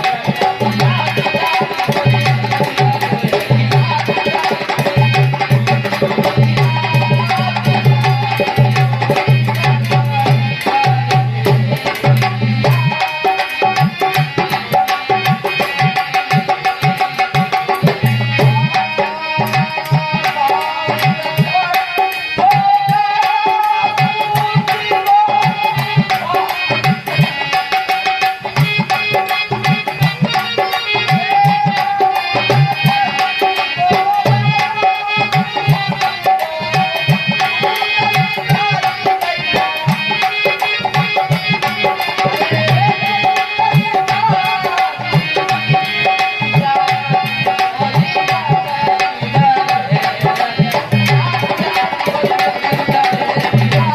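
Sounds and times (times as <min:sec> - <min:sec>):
hand drum fast rhythm: 0:00.0 - 0:53.9.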